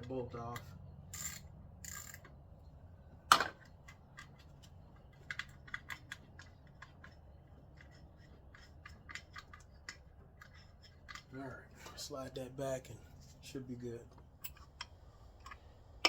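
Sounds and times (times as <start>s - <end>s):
ratchet wrench clicking: 1.1s - 2.4s.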